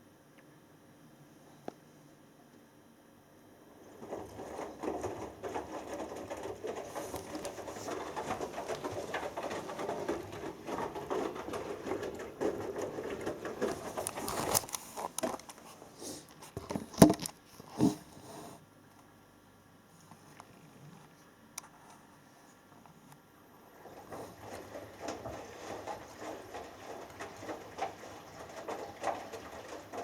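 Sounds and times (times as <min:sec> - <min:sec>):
laundry sloshing in washing machine: 0:03.5 - 0:17.2, 0:23.6 - 0:30.0.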